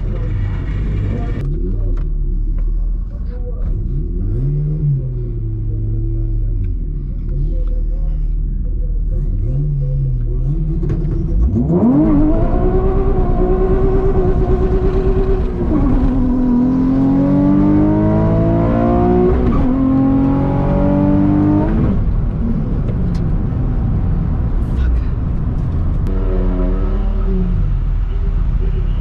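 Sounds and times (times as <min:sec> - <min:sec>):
car engine revving through gears: 0:09.3 - 0:23.4.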